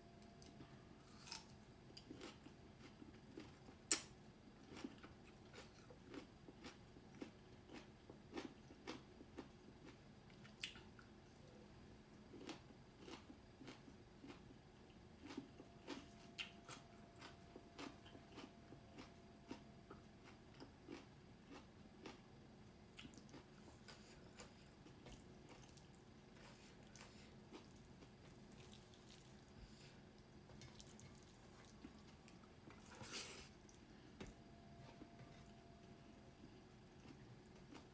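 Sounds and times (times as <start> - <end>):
wet chewing sounds: 23.0 - 29.4.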